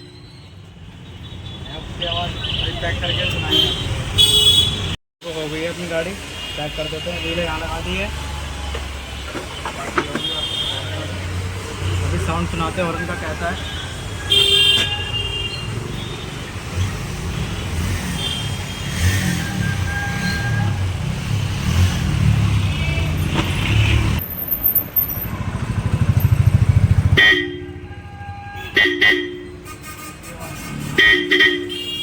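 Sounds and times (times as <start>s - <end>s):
scooter horn honks: 3.4s - 5.0s, 27.0s - 29.8s, 31.0s - 32.0s.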